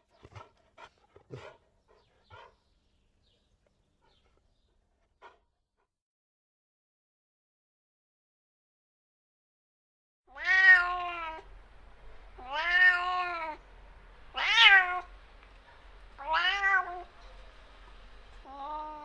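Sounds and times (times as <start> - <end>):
cat meowing: 10.3 - 11.5, 12.4 - 13.6, 14.3 - 15.1, 16.2 - 17.1, 18.4 - 19.0.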